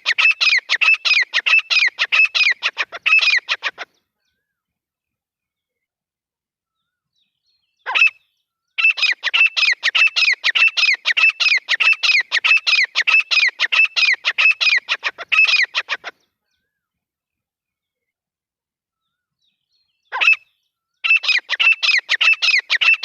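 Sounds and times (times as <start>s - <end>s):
bird calling sharp notes: 0.0s - 4.0s, 7.9s - 16.2s, 20.1s - 23.0s.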